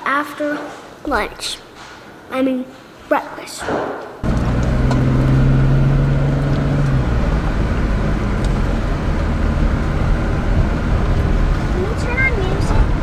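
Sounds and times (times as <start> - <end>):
car rumble on road: 4.2 - 13.0
engine hum: 4.2 - 13.0.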